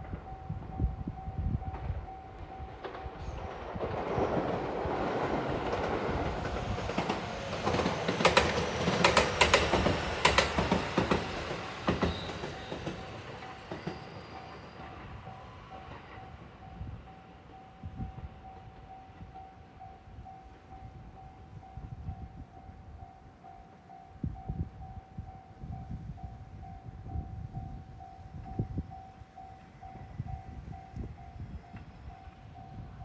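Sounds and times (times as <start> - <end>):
electric train rumble: 0.0 - 33.0
wheels clattering over rail joints: 2.8 - 15.0.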